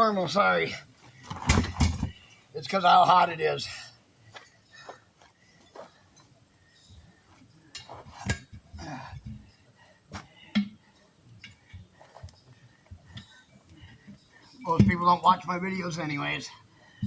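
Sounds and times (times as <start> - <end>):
quiet scuffing: 4.3 - 6.3.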